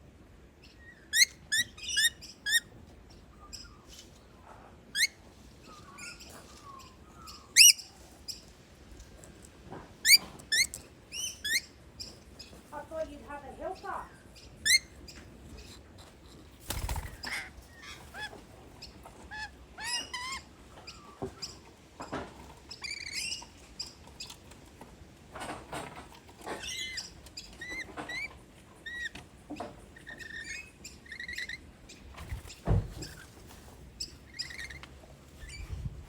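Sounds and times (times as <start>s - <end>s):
lorikeets chirping and chattering: 0.6s - 2.7s, 5.0s - 8.4s, 10.0s - 12.6s, 13.6s - 15.8s, 29.8s - 32.1s, 34.0s - 34.8s
dull thump: 32.6s - 33.1s.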